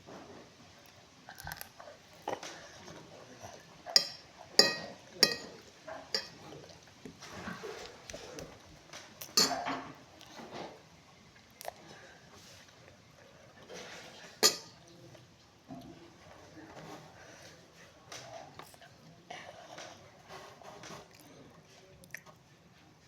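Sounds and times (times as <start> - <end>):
utensils clinking against dishes: 3.9 - 6.4, 9.2 - 10.0, 13.7 - 14.8.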